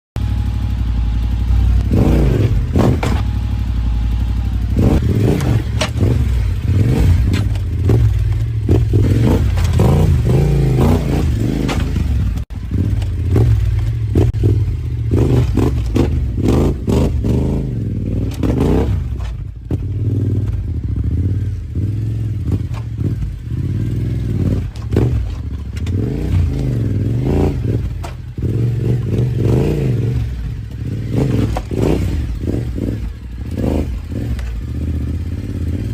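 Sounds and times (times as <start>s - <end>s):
motorcycle engine revving: 0.2s - 35.9s.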